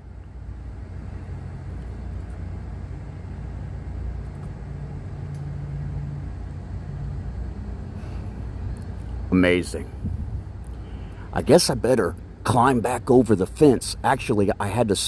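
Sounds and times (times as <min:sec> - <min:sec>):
machinery rumble and hum: 0:00.0 - 0:15.0.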